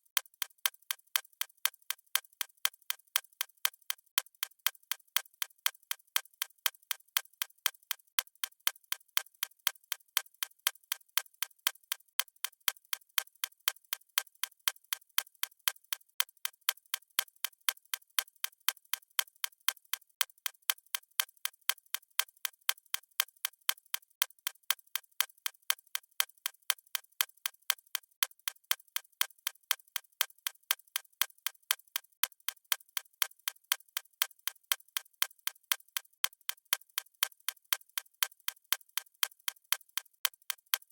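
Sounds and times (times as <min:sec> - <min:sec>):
clock ticking: 0:32.2 - 0:40.9.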